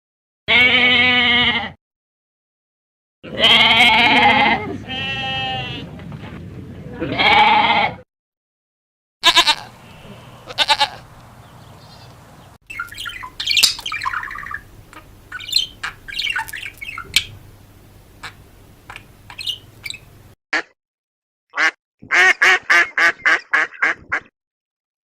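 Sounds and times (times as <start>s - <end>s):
loud pitched animal call: 9.2s - 11.0s, 12.7s - 17.4s, 18.2s - 20.1s
short high animal calls: 9.2s - 11.0s
sharp squawks and chirps: 12.7s - 17.4s, 18.2s - 20.1s.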